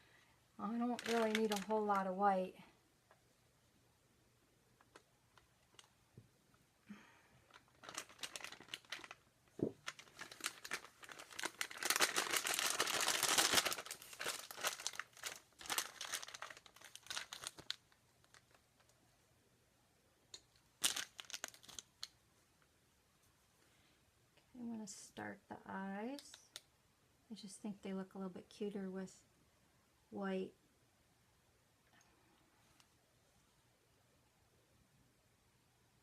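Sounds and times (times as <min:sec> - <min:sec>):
plastic piping bag crinkling: 0:00.6 - 0:02.4, 0:04.8 - 0:06.0, 0:07.0 - 0:19.0, 0:20.4 - 0:22.2, 0:26.2 - 0:26.6.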